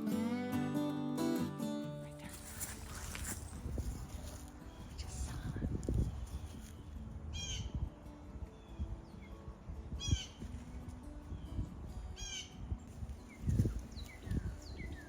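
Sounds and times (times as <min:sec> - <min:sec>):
footsteps on trail: 0:02.2 - 0:07.1, 0:12.9 - 0:15.0.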